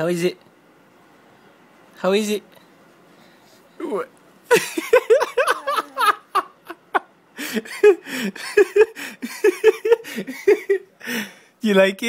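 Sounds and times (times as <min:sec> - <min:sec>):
laughter and giggling: 0:04.5 - 0:10.9.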